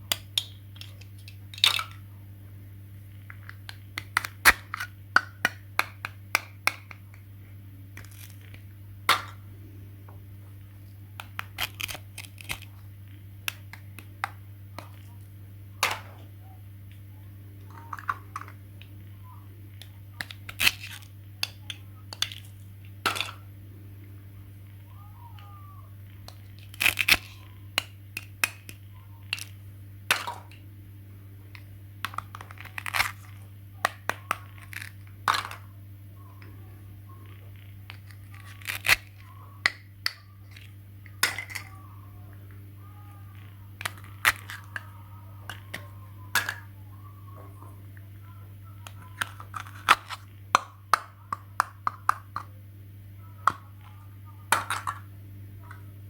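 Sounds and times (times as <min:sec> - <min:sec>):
steady electrical hum: 0:00.0 - 0:56.0
clicks of small hard objects: 0:00.1 - 0:02.0, 0:03.3 - 0:07.2, 0:08.0 - 0:09.4, 0:11.2 - 0:12.7, 0:17.6 - 0:18.9, 0:19.8 - 0:23.4, 0:26.2 - 0:30.6, 0:31.5 - 0:35.7, 0:43.3 - 0:44.9.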